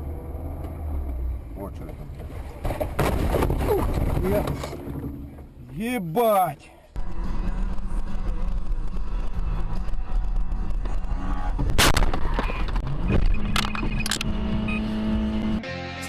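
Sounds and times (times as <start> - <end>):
car crash bang: 2.6 - 5.1
loud rough rumble: 7.0 - 15.6.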